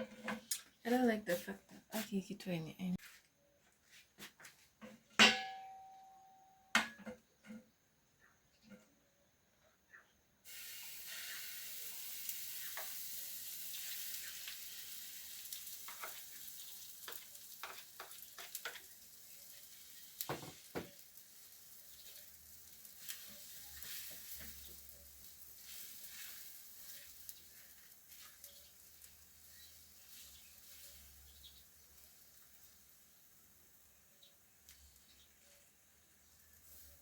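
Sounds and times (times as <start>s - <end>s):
food sizzling in a pan: 10.4s - 37.0s.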